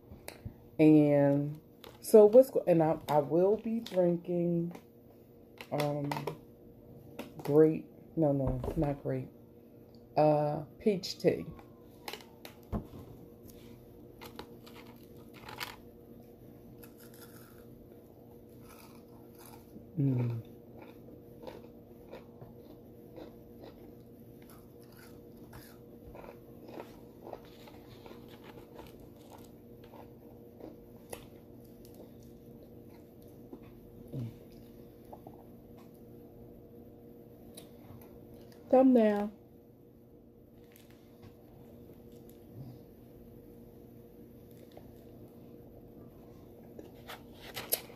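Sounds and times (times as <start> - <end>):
steady low hum: 0.0 - 47.9
person chewing food: 16.8 - 17.8, 18.4 - 36.0.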